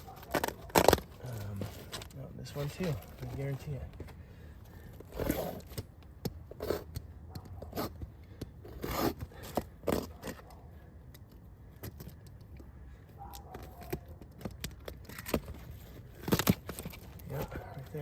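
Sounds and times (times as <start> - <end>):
roof shingles scraping and rustling: 0.0 - 4.1.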